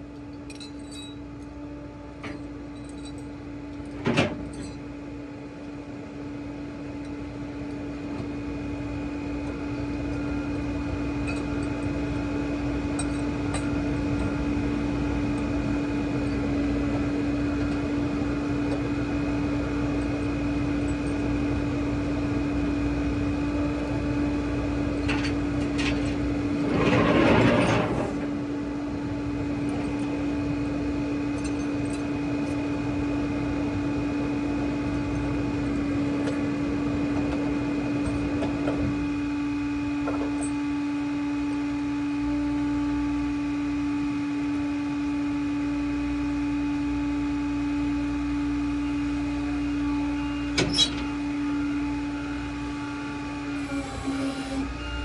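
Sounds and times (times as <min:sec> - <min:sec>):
tow truck engine humming: 0:01.2 - 0:44.5.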